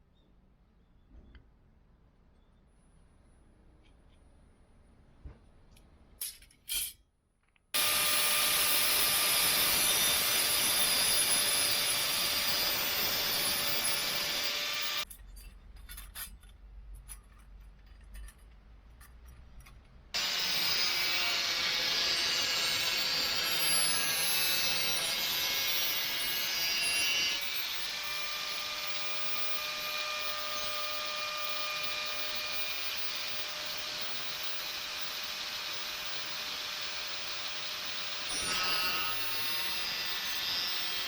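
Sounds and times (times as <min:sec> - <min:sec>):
power tool whining: 0:07.8 - 0:15.1, 0:20.2 - 0:41.0.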